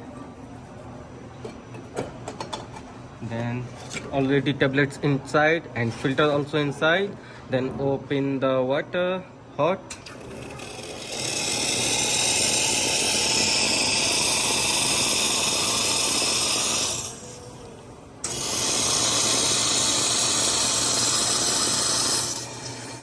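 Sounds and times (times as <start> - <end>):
hot water and steam hissing: 10.7 - 17.6, 18.2 - 23.0.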